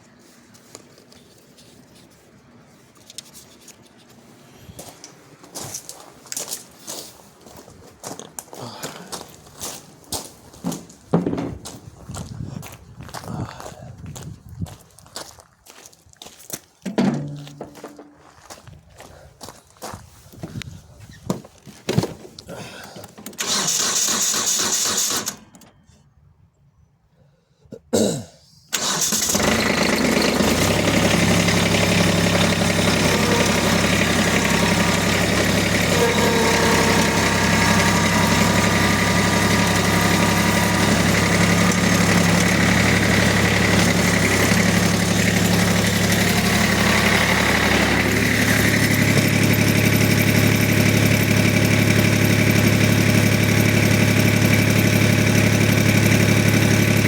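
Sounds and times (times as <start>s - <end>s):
engine cranking and starting: 22.9s - 25.9s, 28.7s - 57.0s
engine idling: 28.7s - 57.0s.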